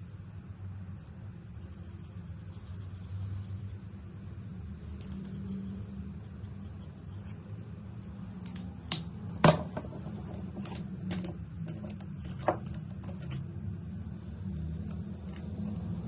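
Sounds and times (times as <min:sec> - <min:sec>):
steady low hum: 0:00.0 - 0:16.0
markers clicking and tapping: 0:09.9 - 0:13.5.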